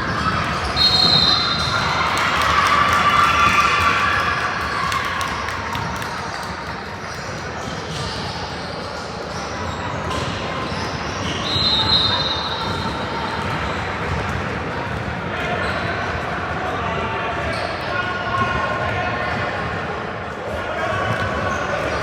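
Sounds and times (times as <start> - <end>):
referee's whistle blast: 0.7 - 1.7.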